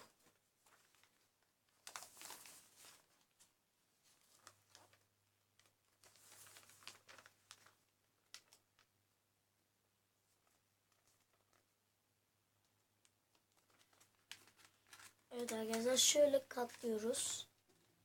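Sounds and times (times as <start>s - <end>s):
paper rustling and crinkling: 0.0s - 9.0s, 10.3s - 11.8s, 13.0s - 17.4s.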